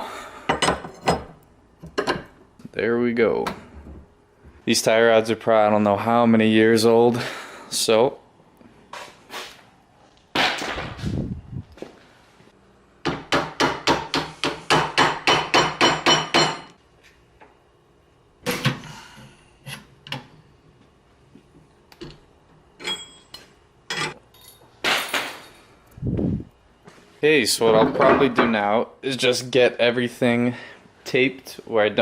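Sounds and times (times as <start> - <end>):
hammer striking metal: 13.0 - 16.7.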